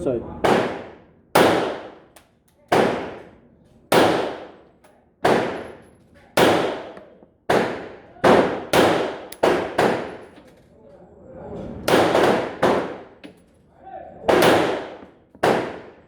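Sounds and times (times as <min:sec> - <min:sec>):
pistol shots: 0:00.4 - 0:05.8, 0:06.4 - 0:10.4, 0:11.9 - 0:13.2, 0:14.3 - 0:16.0.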